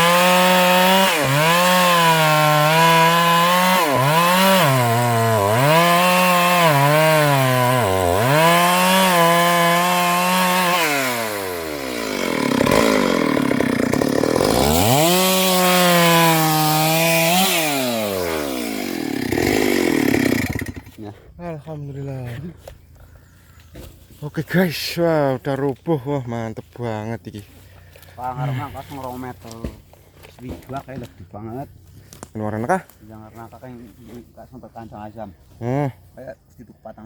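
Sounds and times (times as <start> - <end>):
chainsaw sawing through trunk: 0.0 - 21.3, 27.5 - 34.3.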